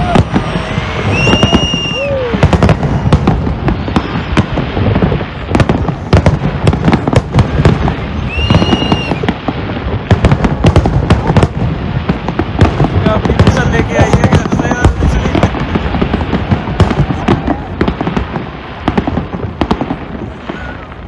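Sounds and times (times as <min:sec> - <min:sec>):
firework high whistle: 0:00.0 - 0:05.2, 0:07.8 - 0:09.4
fireworks bangs: 0:00.0 - 0:21.0.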